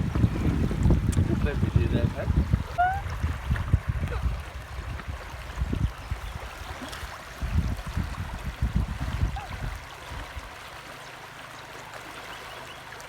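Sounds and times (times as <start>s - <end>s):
uneven low rumbling: 0.0s - 6.3s
river water flowing: 0.0s - 13.0s.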